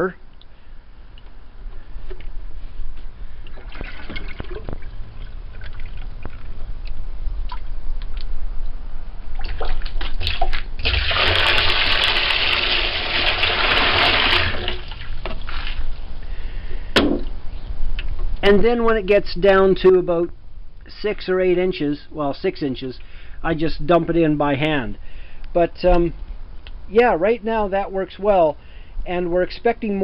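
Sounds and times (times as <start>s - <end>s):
water pouring: 3.5s - 6.6s, 9.4s - 15.9s
water splashing: 3.5s - 7.7s, 9.3s - 15.9s.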